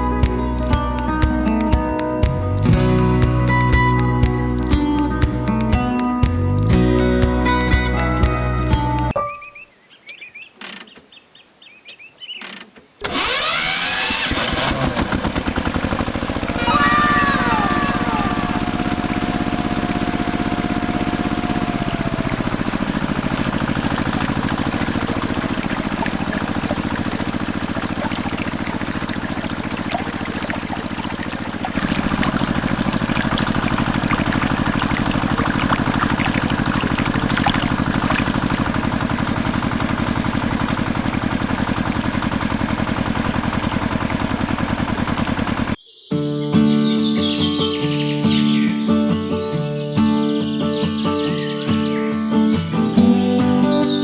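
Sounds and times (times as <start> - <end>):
small engine running: 13.0 - 45.8
water pouring and splashing: 15.0 - 45.8.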